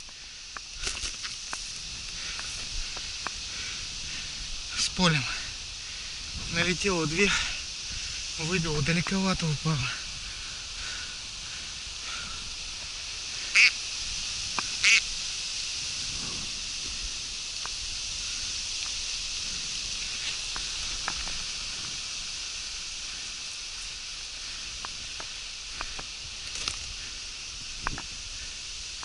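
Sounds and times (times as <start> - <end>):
faint ticks: 0.0 - 7.4, 14.4 - 15.0, 15.6 - 29.0
steady high hiss: 0.0 - 29.0
duck quacks: 13.5 - 13.8, 14.8 - 15.0.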